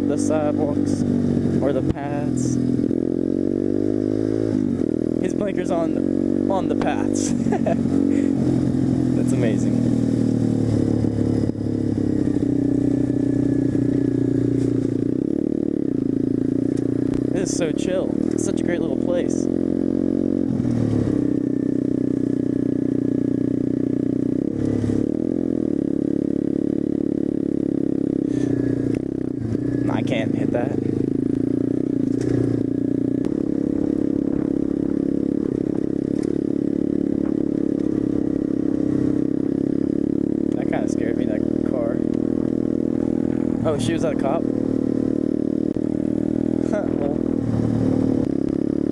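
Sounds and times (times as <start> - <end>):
motorbike engine running: 0.0 - 48.9.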